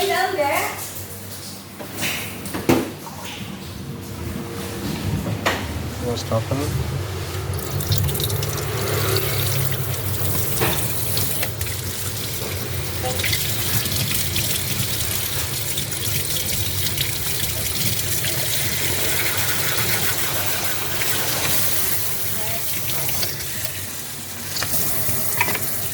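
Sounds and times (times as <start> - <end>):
water running from tap: 7.3 - 25.9.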